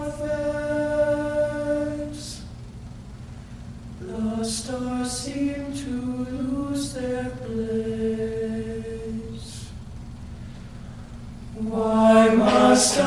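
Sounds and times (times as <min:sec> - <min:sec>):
men's a cappella singing: 0:00.0 - 0:02.5, 0:04.0 - 0:09.8, 0:11.6 - 0:13.0.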